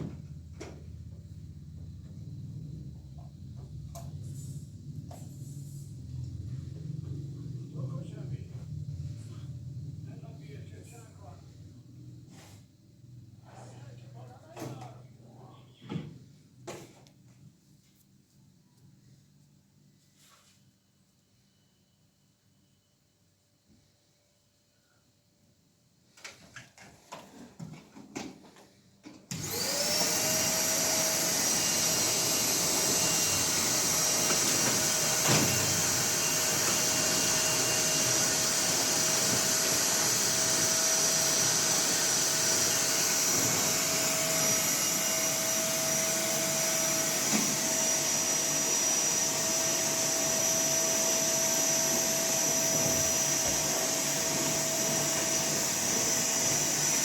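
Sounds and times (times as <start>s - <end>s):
electric fan motor whining: 29.3s - 57.0s.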